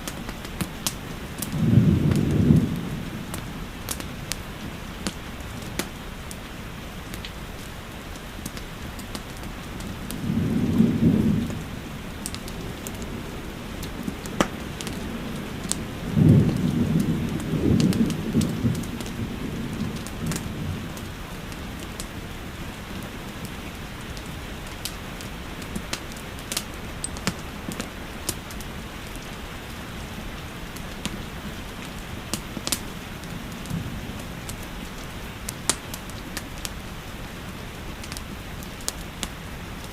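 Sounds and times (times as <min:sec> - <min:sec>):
steady rain: 0:00.0 - 0:39.9
wood fire crackling: 0:00.0 - 0:39.9
low rumbles of thunder: 0:01.2 - 0:04.7, 0:09.7 - 0:24.5, 0:32.0 - 0:35.4.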